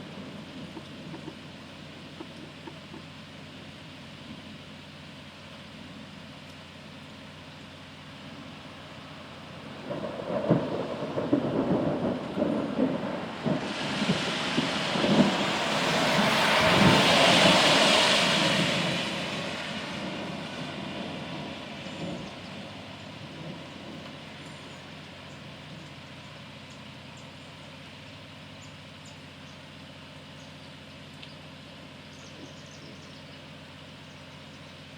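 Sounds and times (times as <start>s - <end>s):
thunder rumbling: 9.7s - 25.2s.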